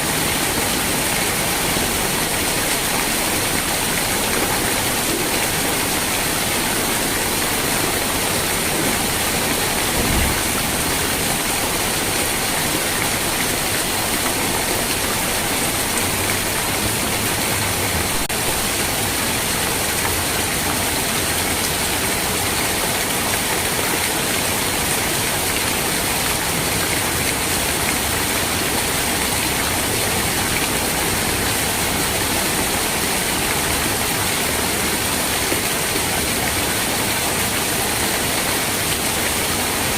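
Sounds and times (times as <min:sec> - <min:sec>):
heavy rain hissing: 0:00.0 - 0:23.0
low thump: 0:09.8 - 0:10.9.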